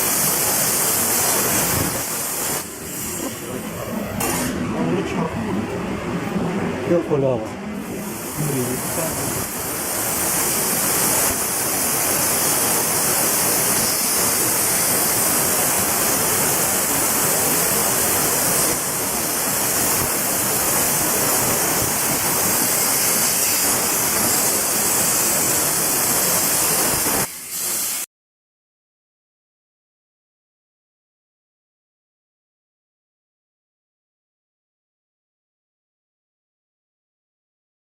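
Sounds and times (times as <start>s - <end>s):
plasma cutter hissing: 0.0s - 4.8s, 7.8s - 28.1s.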